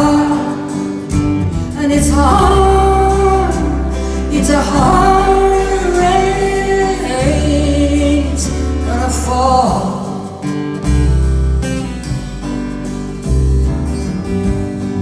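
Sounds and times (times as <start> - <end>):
woman singing: 0.0 - 10.4
acoustic guitar: 0.0 - 15.0.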